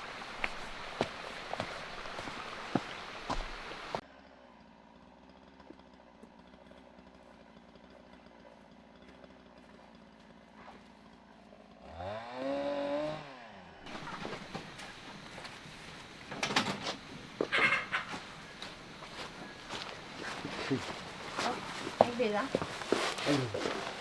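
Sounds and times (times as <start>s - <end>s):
small motorbike engine revving: 5.2s - 14.2s
faint steady hum: 13.9s - 24.0s.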